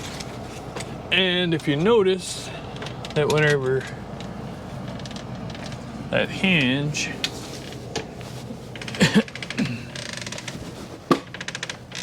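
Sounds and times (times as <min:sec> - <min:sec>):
door hinge creaking: 0:08.8 - 0:12.0.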